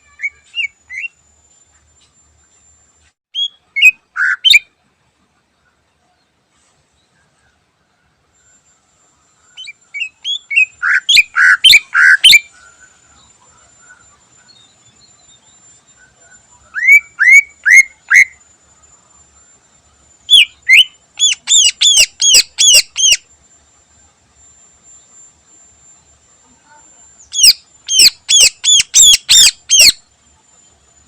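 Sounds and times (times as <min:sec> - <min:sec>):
bird whistling song: 0:00.0 - 0:01.2, 0:03.3 - 0:04.7, 0:09.4 - 0:13.1, 0:13.8 - 0:18.4, 0:20.3 - 0:23.3, 0:27.2 - 0:30.1.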